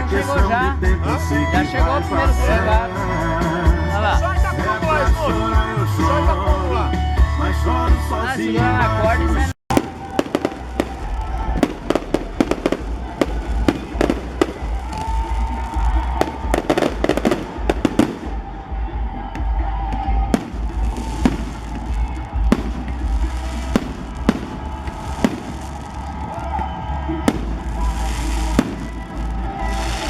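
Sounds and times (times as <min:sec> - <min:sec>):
firecracker bangs: 0:09.7 - 0:18.9, 0:20.3 - 0:30.0.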